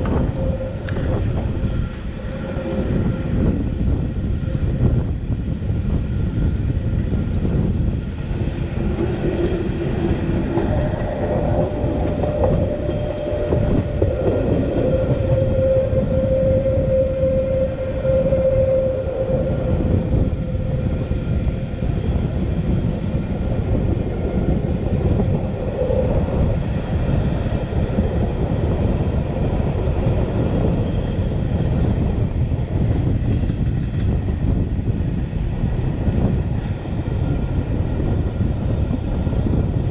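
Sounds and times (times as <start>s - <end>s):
low held tone: 0.0s - 4.7s, 8.6s - 23.7s
train rumble from on board: 0.0s - 39.9s
high thin squeal: 11.2s - 20.6s.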